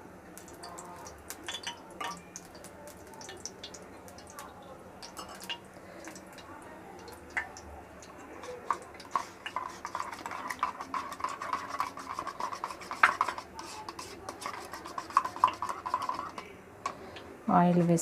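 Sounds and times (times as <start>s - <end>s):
metal utensil scraping pan: 8.4s - 18.0s.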